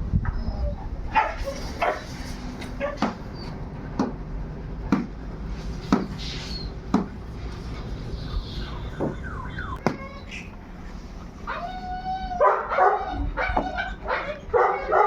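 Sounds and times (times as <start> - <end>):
steady low rumble: 0.0 - 15.0
large dog barking: 1.1 - 3.4, 12.3 - 15.0.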